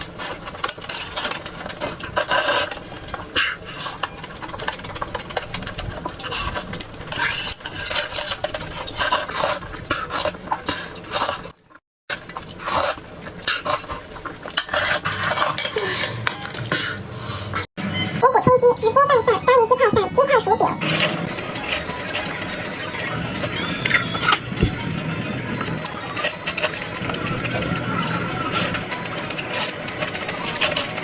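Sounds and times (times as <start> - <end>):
chewing and mouth sounds: 0.0 - 17.0.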